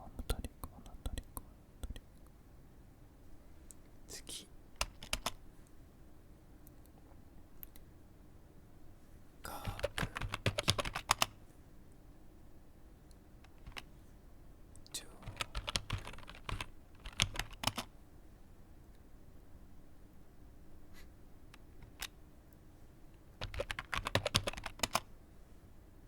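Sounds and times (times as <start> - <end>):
computer keyboard typing: 4.8 - 5.4, 9.5 - 11.4, 13.5 - 13.9, 15.2 - 17.9, 21.8 - 22.1, 23.4 - 25.1.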